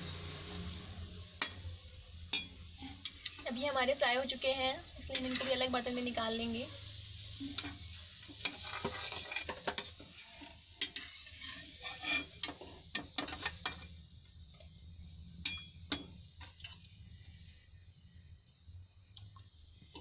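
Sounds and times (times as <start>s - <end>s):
balls sizzling in a pan: 0.0s - 20.0s
metal skimmer scraping a pan: 2.3s - 3.8s, 4.9s - 6.6s, 7.3s - 13.9s.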